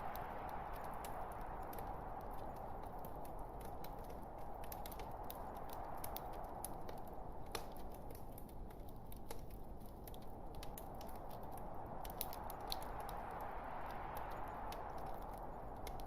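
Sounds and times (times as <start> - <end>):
log fire crackling and popping: 0.0 - 16.0.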